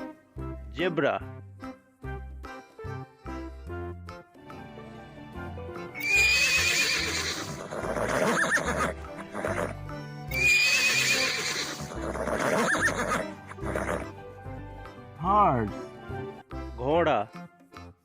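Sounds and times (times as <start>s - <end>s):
background music: 0.0s - 18.0s
zebra whinny: 6.0s - 14.1s.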